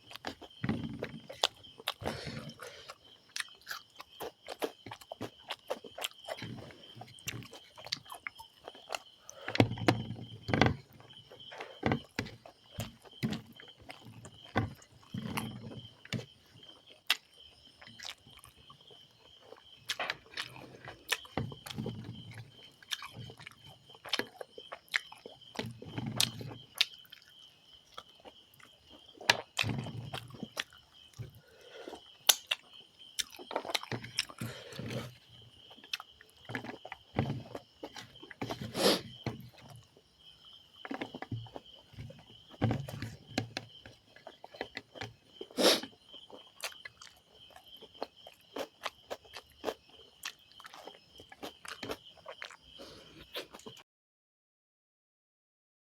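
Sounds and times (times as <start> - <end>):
person chewing food: 0.0 - 53.8.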